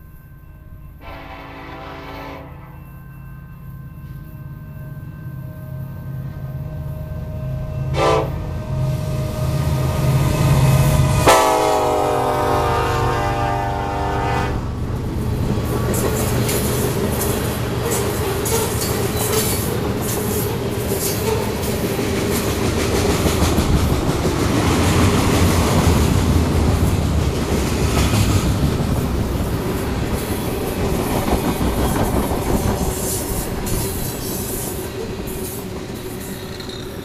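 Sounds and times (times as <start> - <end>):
train wheels rumbling on rails: 7.7 - 37.0.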